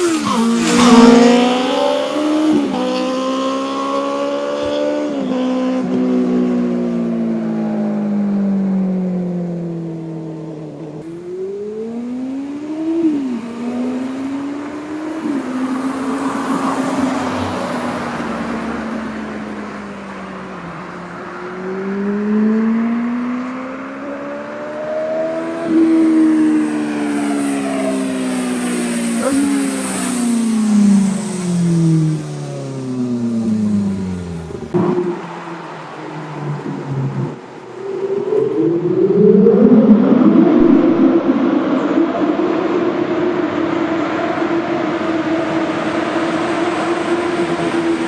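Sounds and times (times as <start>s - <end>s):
motorcycle engine revving: 0.0s - 16.6s, 21.5s - 48.0s.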